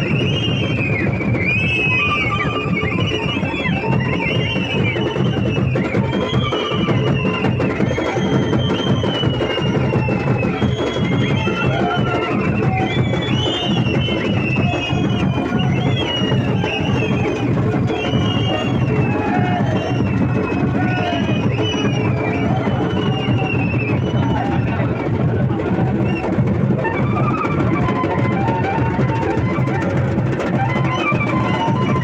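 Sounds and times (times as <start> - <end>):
drums beaten: 0.0 - 32.0.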